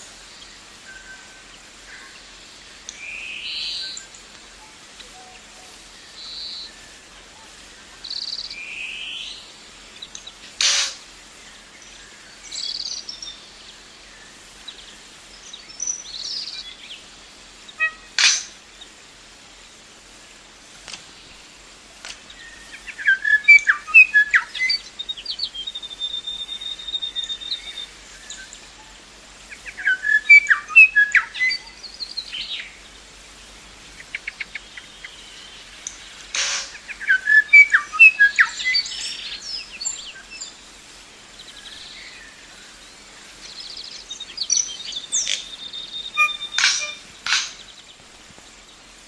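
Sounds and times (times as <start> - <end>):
songbird singing: 0.0 - 49.0
sharp click: 10.6 - 11.0, 18.2 - 18.5, 35.8 - 36.8, 46.5 - 47.6.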